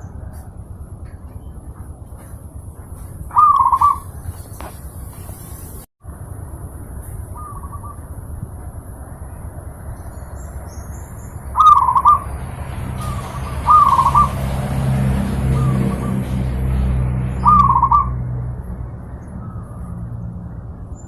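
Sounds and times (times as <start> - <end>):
dove cooing: 3.3 - 4.4, 11.6 - 12.3, 13.0 - 14.6, 17.4 - 18.2.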